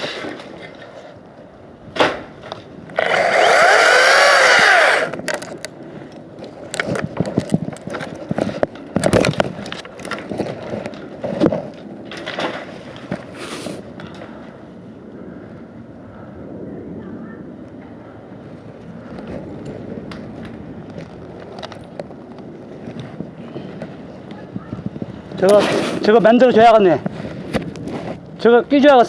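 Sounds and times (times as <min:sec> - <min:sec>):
chainsaw cutting: 0:03.0 - 0:05.4.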